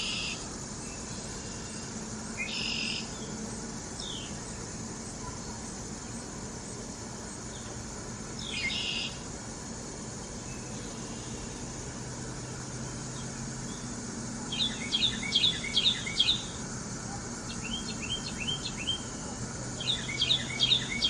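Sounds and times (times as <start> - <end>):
high-pitched insect drone: 0.0 - 21.0
harsh bird calls: 8.4 - 9.3, 12.4 - 21.0.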